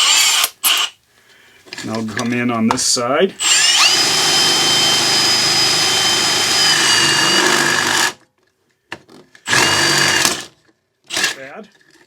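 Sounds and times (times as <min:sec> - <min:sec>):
power drill whine: 0:00.0 - 0:00.9, 0:03.4 - 0:08.2, 0:09.4 - 0:10.5, 0:11.1 - 0:11.4.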